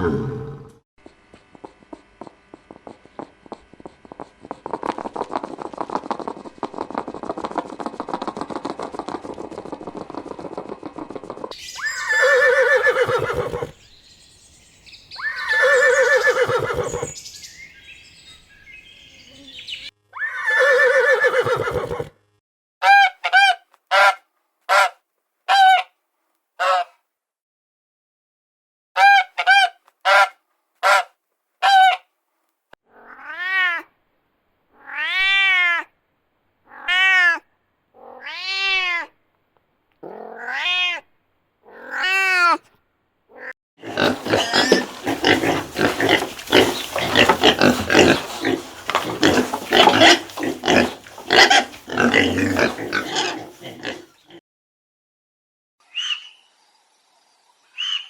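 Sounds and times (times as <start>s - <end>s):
jumble of noisy animal sounds: 0.0s - 14.0s, 14.8s - 19.9s, 43.3s - 54.4s
animal calls rising and falling: 4.7s - 13.8s, 15.1s - 17.3s, 43.3s - 54.2s.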